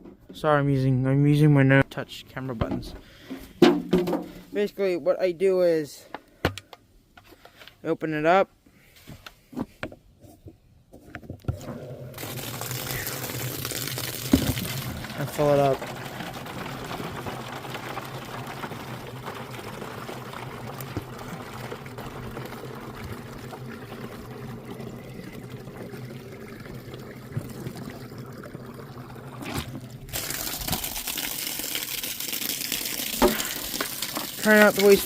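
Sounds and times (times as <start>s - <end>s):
faucet water filling jug: 11.7s - 35.0s.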